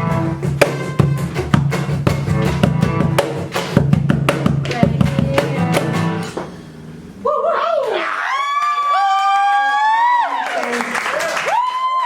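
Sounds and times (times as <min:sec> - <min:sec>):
drum hits: 0:00.0 - 0:06.6
live band playing: 0:00.0 - 0:06.7.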